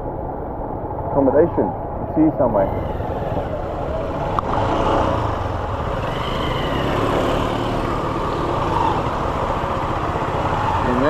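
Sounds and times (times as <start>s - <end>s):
small motorcycle engine running: 2.5s - 11.0s.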